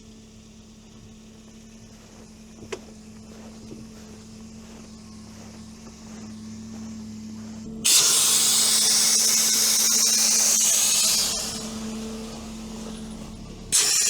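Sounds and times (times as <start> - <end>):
vehicle engine idling: 0.0 - 14.0
air hissing out of tyre: 7.8 - 13.1, 13.7 - 14.0.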